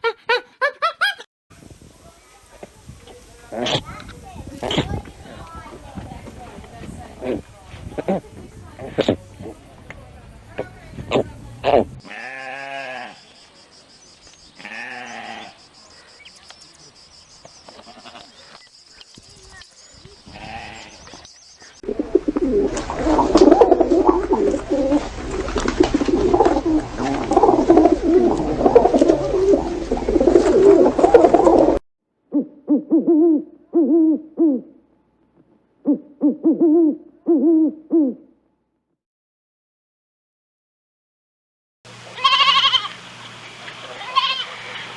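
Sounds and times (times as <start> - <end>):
birds giving low calls: 12.8 - 31.8.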